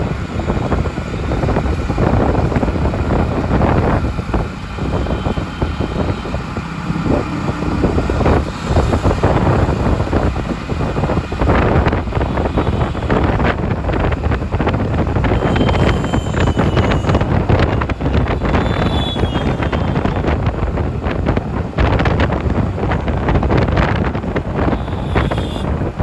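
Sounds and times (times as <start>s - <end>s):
steady high tone: 0.0s - 21.2s, 24.5s - 25.8s
vehicle engines in traffic: 0.0s - 26.0s
wind rumbling on microphone: 0.0s - 26.0s.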